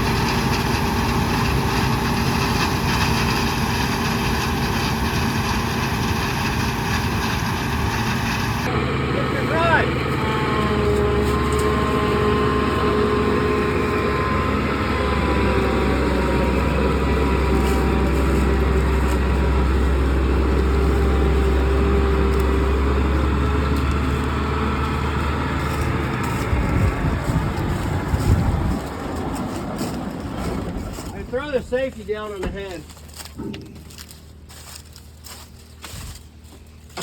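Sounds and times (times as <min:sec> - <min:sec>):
steady machine whine: 0:00.0 - 0:31.9
combine engine drone: 0:00.0 - 0:37.0.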